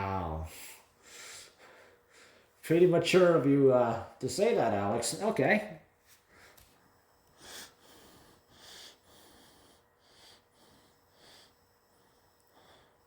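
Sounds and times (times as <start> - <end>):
faint breaths or sniffs: 6.1 - 13.0.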